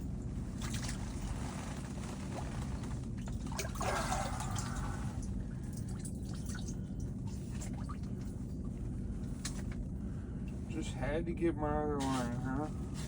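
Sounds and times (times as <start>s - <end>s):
low rumble: 0.0s - 13.0s
water splashing and dripping: 3.3s - 8.1s.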